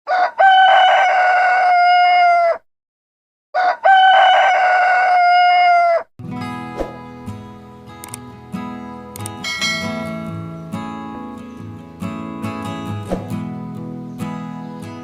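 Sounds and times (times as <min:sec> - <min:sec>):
rooster crowing: 0:00.1 - 0:02.6, 0:03.6 - 0:06.1.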